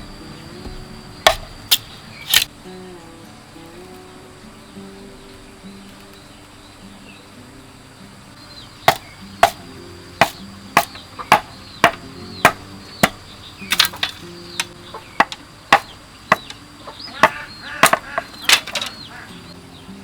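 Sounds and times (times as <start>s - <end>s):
soft background music: 0.0s - 17.6s
blade chopping: 0.6s - 2.5s, 8.9s - 16.6s, 17.2s - 19.0s.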